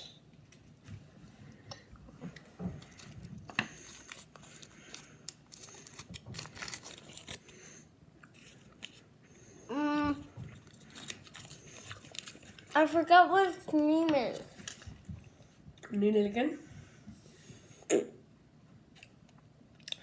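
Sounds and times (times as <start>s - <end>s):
child chewing chocolate: 1.4s - 15.9s, 18.9s - 20.0s.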